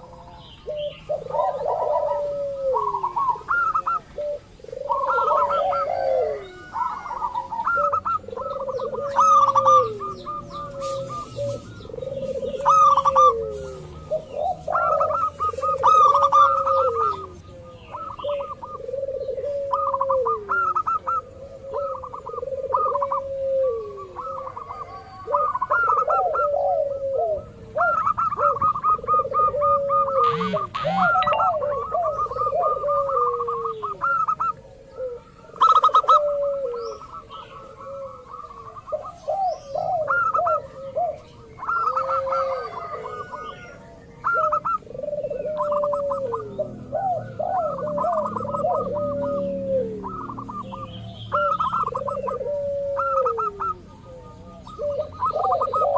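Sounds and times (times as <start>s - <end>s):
doves cooing: 0.0s - 55.9s
small birds chirping: 0.0s - 55.9s.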